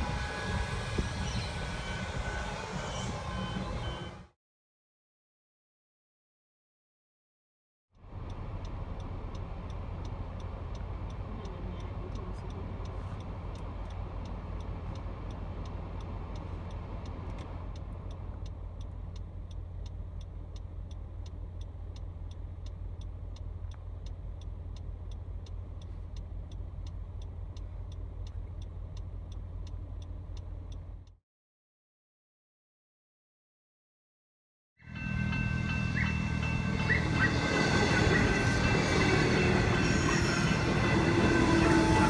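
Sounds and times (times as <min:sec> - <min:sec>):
electric train passing: 0:00.0 - 0:04.3, 0:34.8 - 0:42.0
traffic idling rumble: 0:08.0 - 0:31.1
steady ticking: 0:08.0 - 0:31.2.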